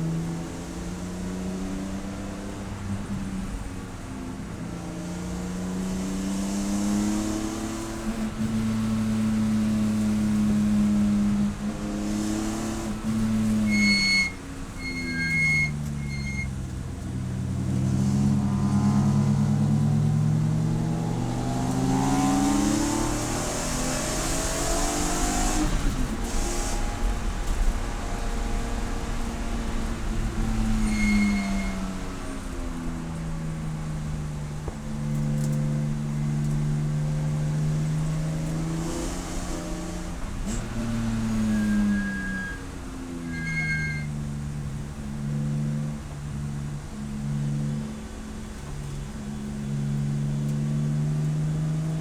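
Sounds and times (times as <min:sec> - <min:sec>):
race car engine revving: 0:14.9 - 0:42.3.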